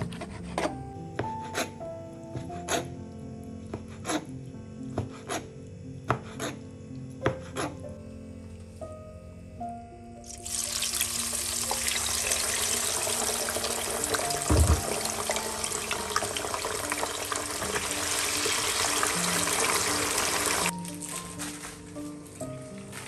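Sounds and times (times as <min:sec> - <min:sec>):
tofu sizzling in hot oil: 0:10.2 - 0:21.6
low thump: 0:14.5 - 0:15.0.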